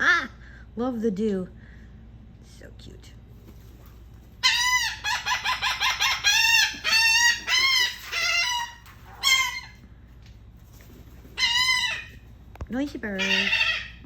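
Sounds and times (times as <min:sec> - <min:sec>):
gull calling: 0:04.4 - 0:09.8, 0:13.1 - 0:14.0.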